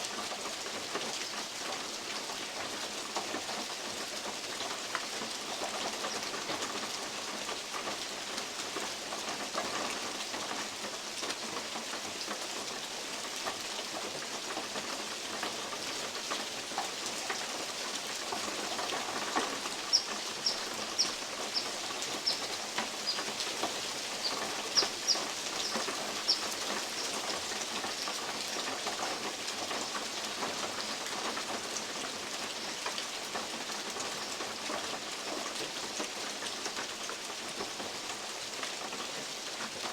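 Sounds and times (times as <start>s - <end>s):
steady rain in forest: 0.0s - 39.9s
bird chipping: 19.8s - 27.3s.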